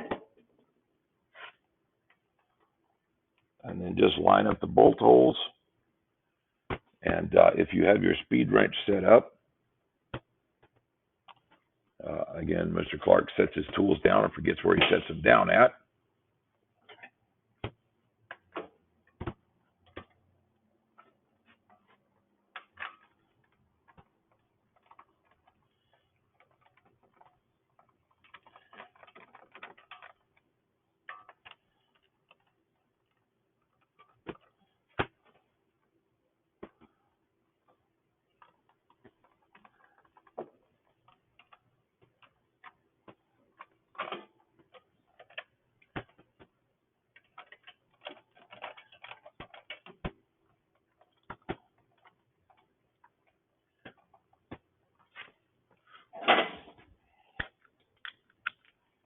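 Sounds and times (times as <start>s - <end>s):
clicks of hand tools and metal parts: 20.9s - 35.4s, 43.6s - 46.5s, 47.1s - 50.1s.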